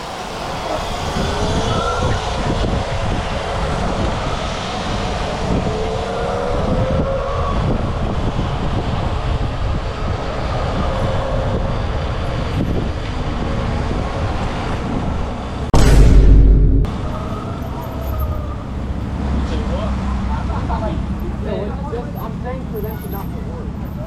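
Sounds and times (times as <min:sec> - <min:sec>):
road rumble: 0:00.0 - 0:24.0
wind on microphone: 0:00.5 - 0:17.2
loud bump: 0:15.7 - 0:17.3.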